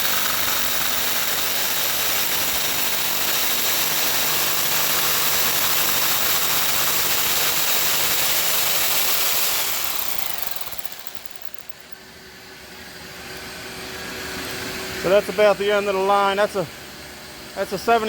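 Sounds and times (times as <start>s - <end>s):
jigsaw cutting fiberglass: 0.0s - 12.0s.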